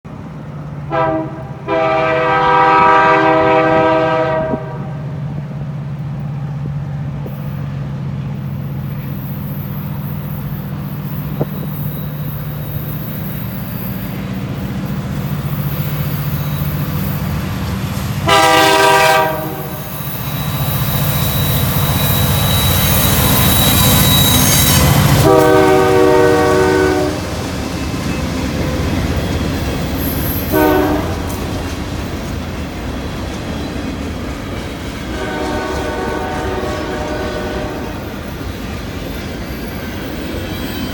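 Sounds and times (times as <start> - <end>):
diesel engines humming: 0.1 - 39.0
train rolling noise: 0.1 - 40.9
locomotive air horn blasts: 0.9 - 5.1, 18.2 - 27.4, 30.4 - 31.6, 35.1 - 38.1.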